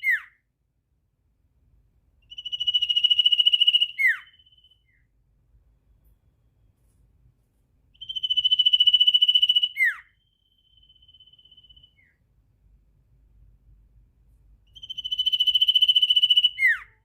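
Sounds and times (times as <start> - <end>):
bird downward-sliding whistle: 2.3 - 5.0, 8.0 - 12.2, 14.8 - 17.0.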